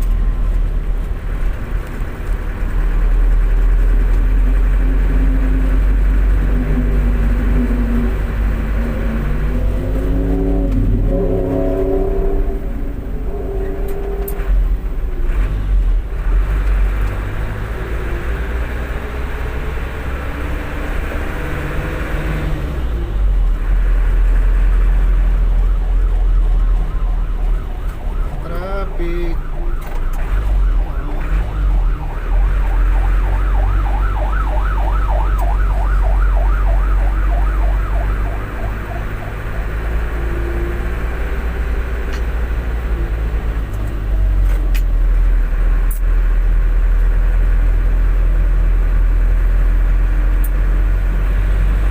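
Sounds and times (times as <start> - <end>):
vehicle road rumble: 0.0 - 51.9
emergency siren yelping: 3.1 - 15.3, 24.7 - 43.7.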